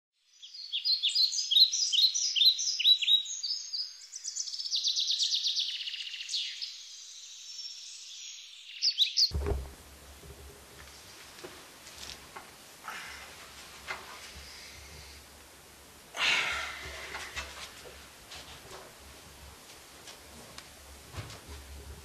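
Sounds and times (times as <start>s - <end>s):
birds chirping and trilling: 0.2s - 9.3s
low thump: 9.3s - 10.5s.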